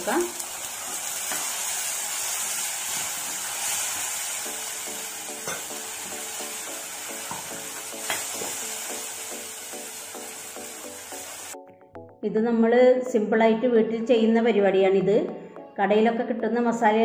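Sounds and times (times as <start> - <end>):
paste sizzling in hot oil: 0.0 - 11.6.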